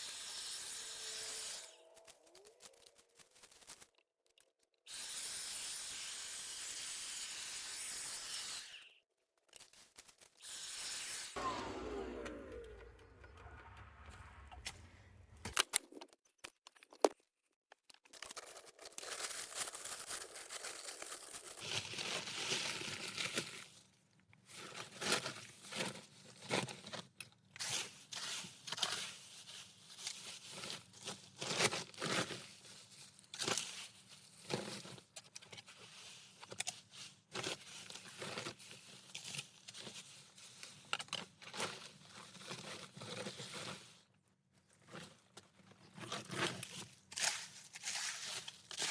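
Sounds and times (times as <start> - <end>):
leaves being scraped: 46.1 - 48.9.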